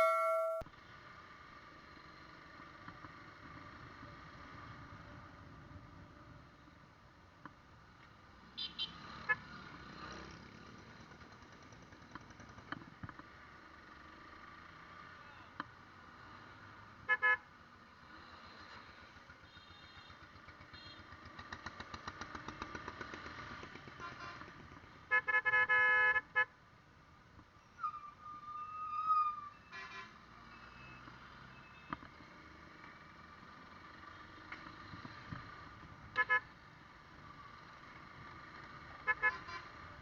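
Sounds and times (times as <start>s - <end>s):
loud long horn blast: 0.0s - 0.6s
vehicle horns honking: 0.0s - 0.6s, 39.1s - 39.7s.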